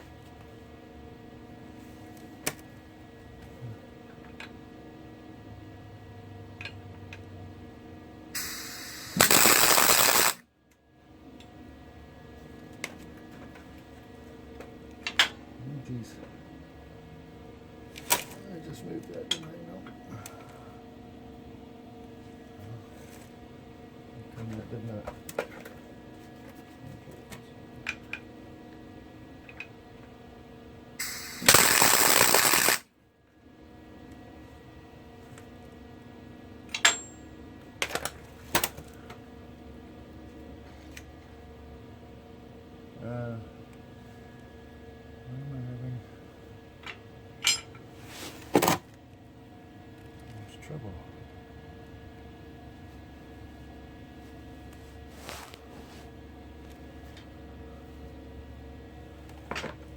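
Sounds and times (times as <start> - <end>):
crackling welding arc: 8.4 - 10.4, 31.0 - 32.8
welder hiss: 8.4 - 10.4, 31.0 - 32.8.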